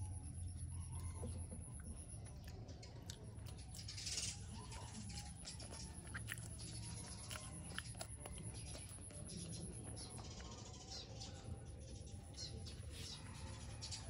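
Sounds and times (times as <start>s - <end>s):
wet mouth chewing clicks: 1.7s - 10.7s.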